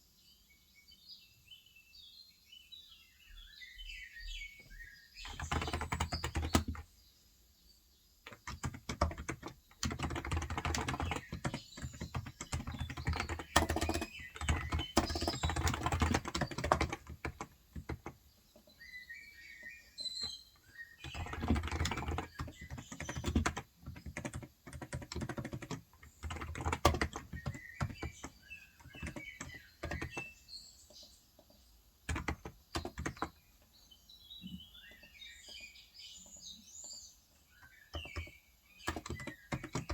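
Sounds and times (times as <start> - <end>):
faint birds chirping: 0.0 - 39.9
keyboard typing: 5.2 - 6.8, 8.3 - 18.2, 21.0 - 30.4, 32.1 - 33.4, 37.9 - 39.9.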